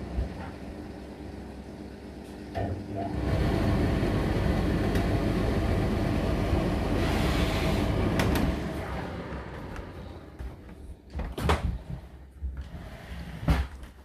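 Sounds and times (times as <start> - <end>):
tumble dryer rumbling rattle: 2.8 - 11.8.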